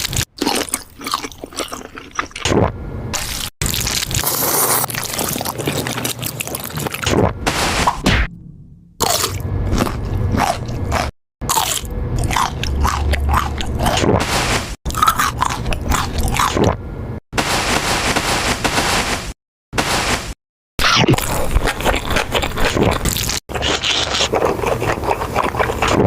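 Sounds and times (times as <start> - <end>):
biting and crunchy chewing: 0.0 - 7.4, 9.0 - 16.8, 21.0 - 26.0.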